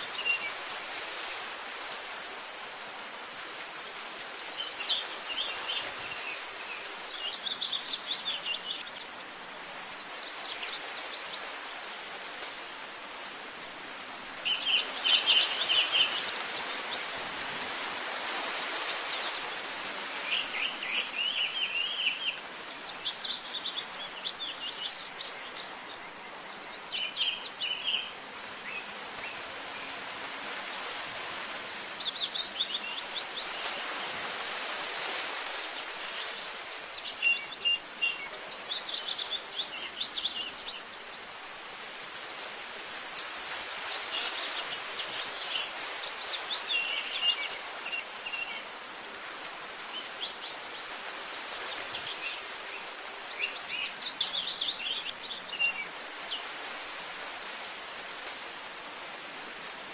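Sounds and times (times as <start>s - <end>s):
steady background hiss: 0.0s - 59.9s
small birds chirping and trilling: 3.0s - 11.6s, 14.3s - 30.0s, 30.6s - 34.0s, 35.0s - 48.8s, 49.8s - 56.7s, 59.1s - 59.9s.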